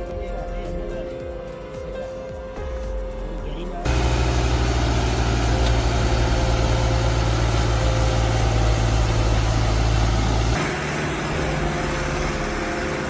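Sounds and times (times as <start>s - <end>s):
tractor engine droning: 3.8s - 13.0s.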